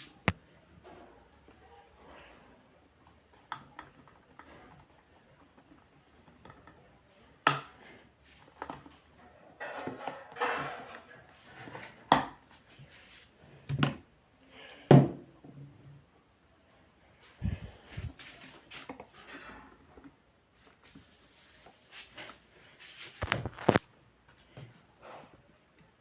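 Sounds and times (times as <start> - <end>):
rustling: 20.5 - 25.3.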